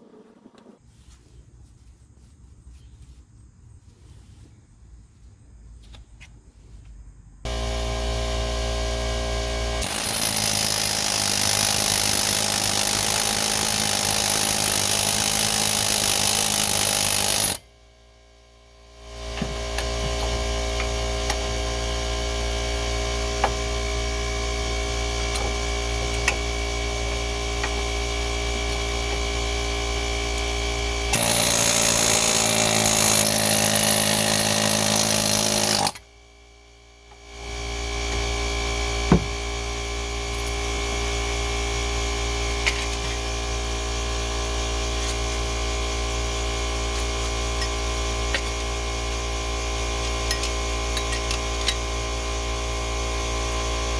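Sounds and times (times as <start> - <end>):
power tool running: 7.5 - 17.7, 18.3 - 53.9.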